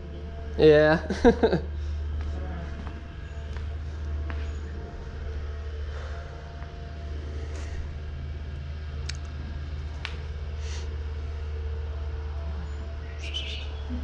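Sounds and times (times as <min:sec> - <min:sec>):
low droning hum: 0:00.0 - 0:14.0.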